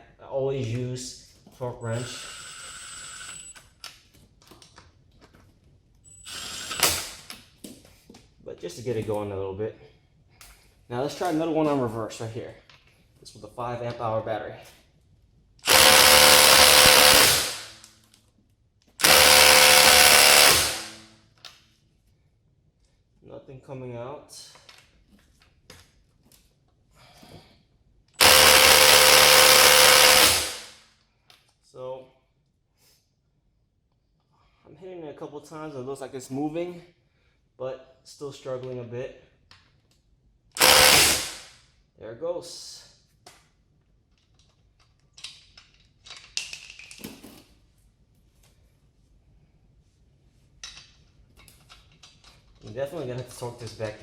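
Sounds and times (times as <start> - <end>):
impact driver hammering on nut: 15.7 - 17.7, 19.0 - 21.0, 28.2 - 30.7, 40.6 - 41.4
light handling clicks and rattles: 44.1 - 47.6, 50.6 - 54.0.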